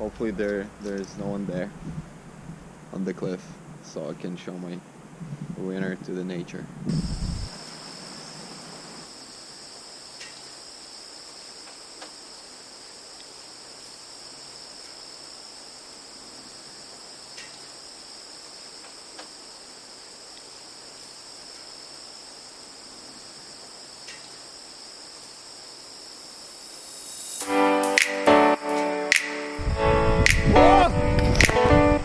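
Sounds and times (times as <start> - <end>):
insects trilling: 6.9 - 29.6.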